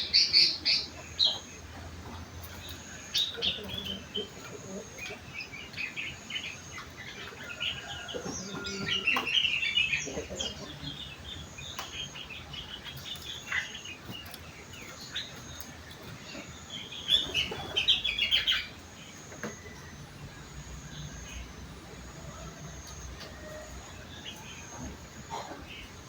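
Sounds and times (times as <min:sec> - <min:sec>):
bulbul chirping song: 0:00.0 - 0:26.0.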